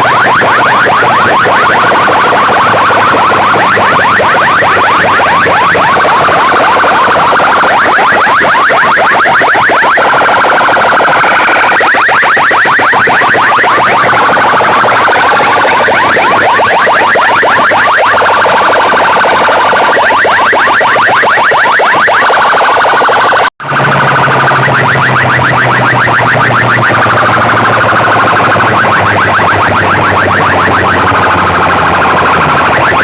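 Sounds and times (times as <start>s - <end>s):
electronic siren-like chirps: 0.0s - 33.0s.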